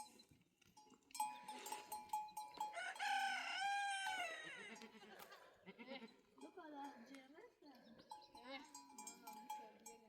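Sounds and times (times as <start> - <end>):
rooster crowing: 2.7 - 4.7.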